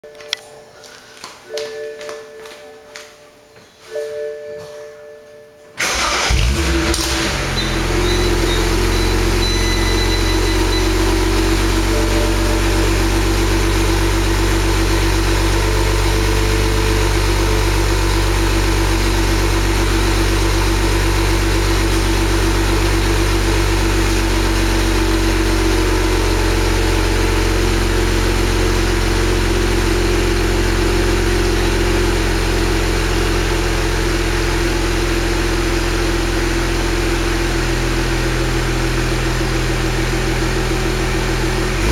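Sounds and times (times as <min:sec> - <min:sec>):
car engine idling: 0:05.8 - 0:41.9.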